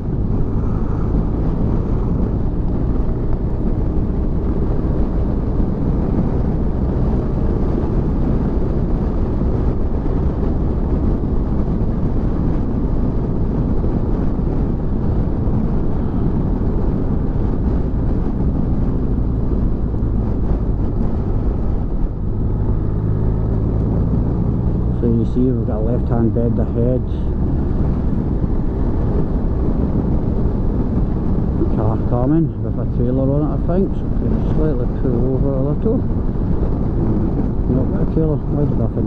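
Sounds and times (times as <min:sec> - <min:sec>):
motorcycle engine drone: 0:00.0 - 0:39.0
wind rushing over microphone: 0:00.0 - 0:39.0.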